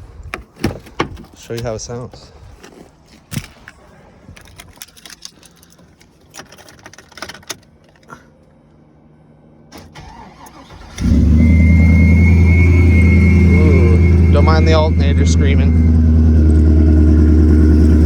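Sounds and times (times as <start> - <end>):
alternator whine: 7.9 - 18.0
car engine fast idle: 9.8 - 18.0.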